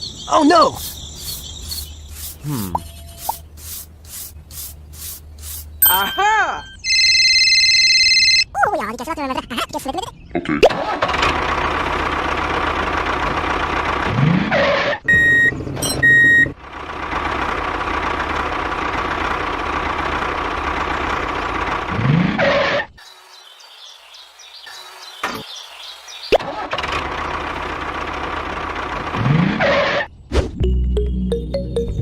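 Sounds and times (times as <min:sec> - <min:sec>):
high electronic beeps: 0:05.8 - 0:08.4.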